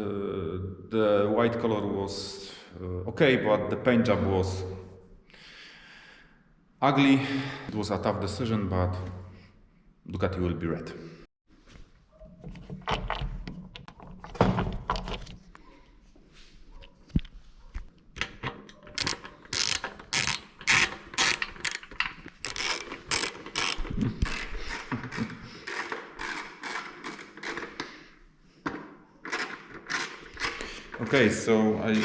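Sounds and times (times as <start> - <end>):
hand ratchet clicking: 18.9 - 27.9, 29.3 - 31.0.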